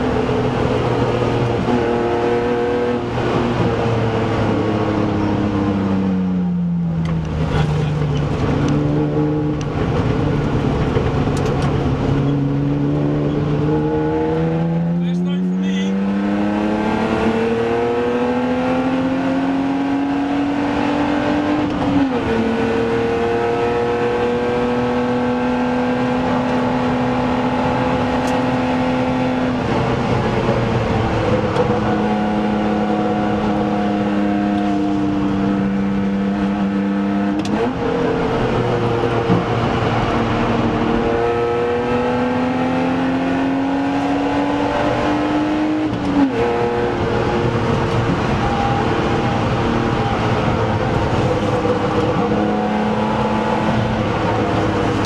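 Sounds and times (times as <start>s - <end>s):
car engine revving from cabin: 0.0s - 55.0s.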